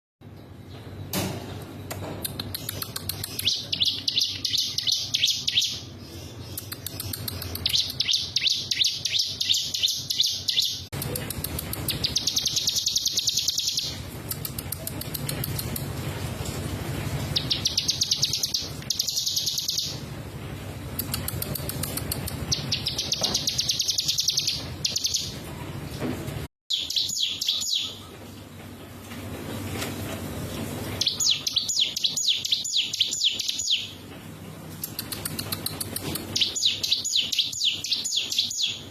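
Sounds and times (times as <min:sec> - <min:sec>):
bird singing rapid high notes: 0:02.6 - 0:14.0, 0:17.3 - 0:20.0, 0:21.4 - 0:25.3, 0:26.7 - 0:28.0, 0:31.0 - 0:34.0, 0:36.3 - 0:38.9.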